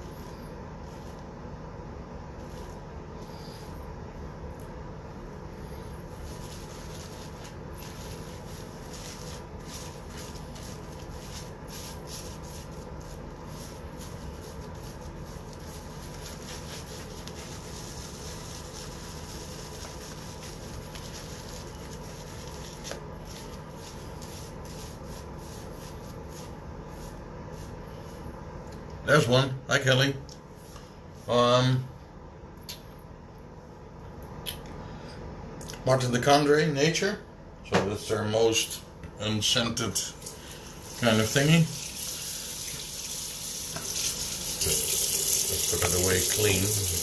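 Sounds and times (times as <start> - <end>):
low room hum: 0.0 - 47.0
handling noise rustling: 5.8 - 28.3.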